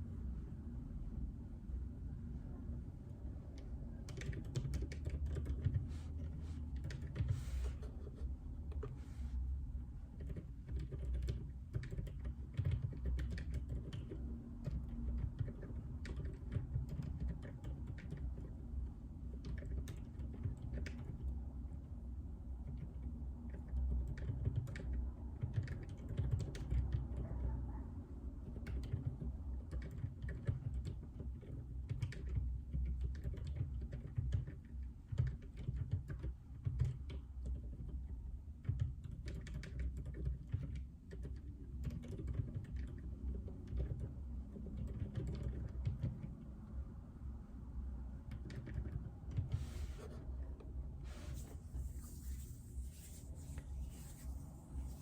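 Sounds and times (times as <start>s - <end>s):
typing on mechanical keyboard: 3.6s - 8.2s, 10.1s - 18.6s, 19.2s - 21.3s, 22.6s - 27.2s, 28.4s - 46.4s, 48.2s - 50.2s.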